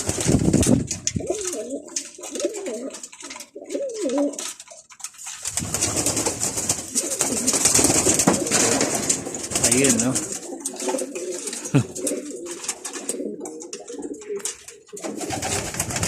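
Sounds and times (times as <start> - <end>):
dense rustling noise: 0.0 - 1.5, 5.2 - 10.5
pigeons cooing: 0.0 - 4.9, 5.6 - 16.0.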